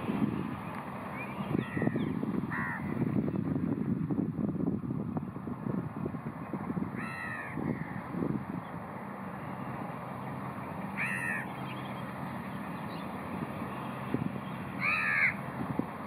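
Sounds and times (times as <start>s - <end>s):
bird harsh caw-like calls: 1.2s - 3.0s, 7.0s - 8.1s, 10.9s - 12.0s, 14.8s - 15.4s.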